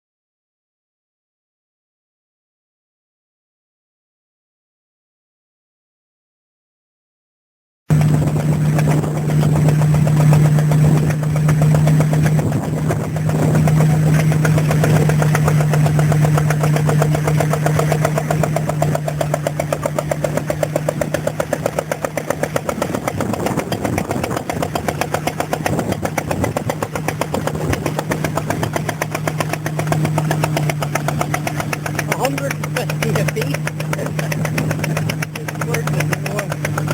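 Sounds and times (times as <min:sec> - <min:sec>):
stationary engine running: 0:07.9 - 0:36.9.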